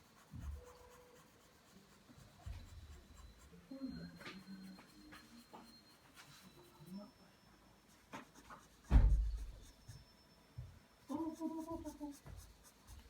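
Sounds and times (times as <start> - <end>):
pencil scratching on paper: 0.0 - 6.9, 7.8 - 10.0, 11.1 - 13.0
loud low thump: 8.9 - 9.5.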